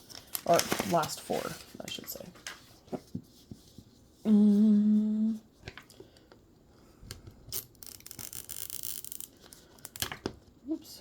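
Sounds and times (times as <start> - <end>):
person humming: 4.2 - 5.5
plastic wrapper tearing: 7.5 - 10.2.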